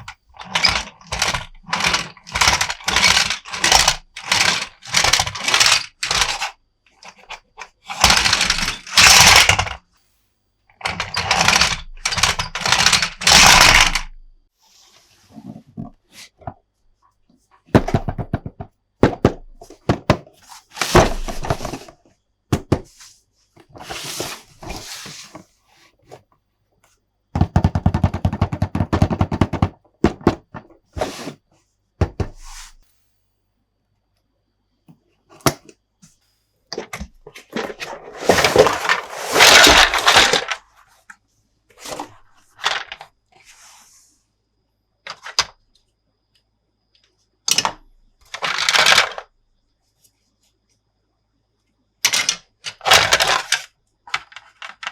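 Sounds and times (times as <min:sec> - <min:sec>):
plastic toy parts clicking: 0:00.4 - 0:09.8, 0:10.8 - 0:14.2
packaging rustling: 0:37.4 - 0:40.7.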